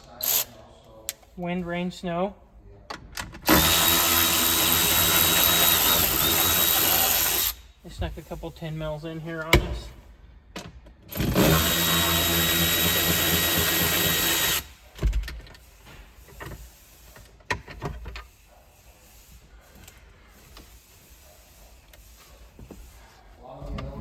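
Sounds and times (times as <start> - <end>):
power drill running: 3.5 - 7.6, 11.1 - 14.8.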